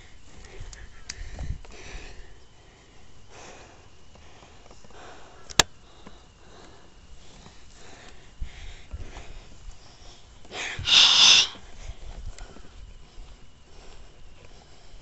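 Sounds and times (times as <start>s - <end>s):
soft hissing: 9.2s - 15.0s.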